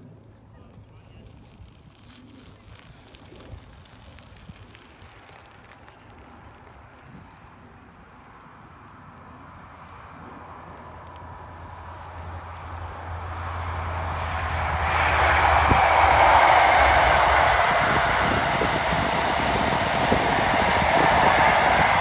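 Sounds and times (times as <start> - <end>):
low train rumble: 8.4 - 22.0
coaches rushing on rails: 9.9 - 22.0
train passing at speed: 11.3 - 22.0.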